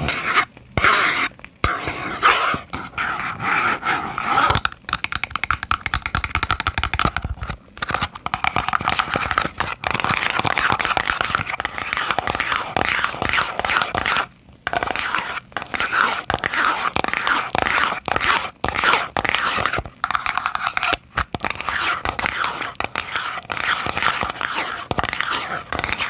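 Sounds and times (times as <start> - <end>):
fingernails tapping on boxes: 4.5 - 7.2.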